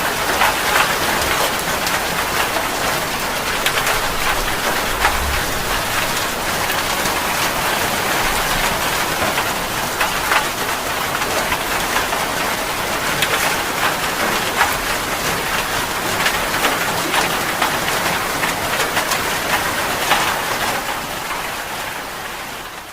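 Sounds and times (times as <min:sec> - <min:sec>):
heavy rain falling: 0:00.0 - 0:22.9.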